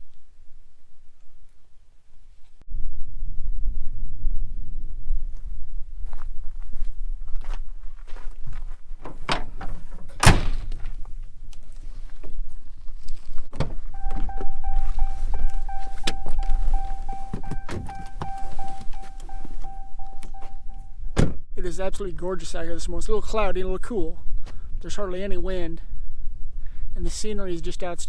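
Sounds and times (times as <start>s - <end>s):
truck doors shutting: 9.1s - 11.3s, 13.5s - 21.4s
electronic warning chime: 13.9s - 21.2s.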